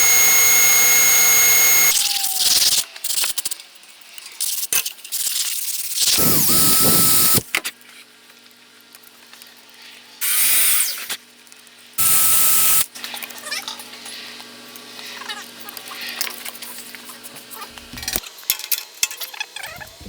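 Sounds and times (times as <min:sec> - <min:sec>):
handheld power tool whining: 0:00.0 - 0:02.8, 0:06.1 - 0:07.5, 0:12.0 - 0:12.9.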